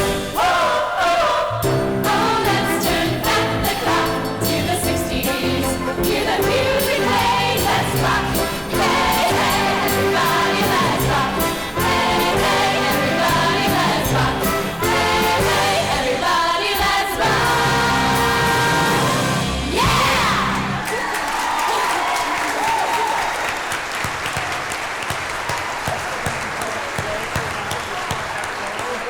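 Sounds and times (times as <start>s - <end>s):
live band playing: 0.0s - 0.5s, 1.6s - 16.1s, 17.3s - 20.8s
voices singing together: 0.0s - 21.0s
steady drum beat: 1.7s - 20.8s.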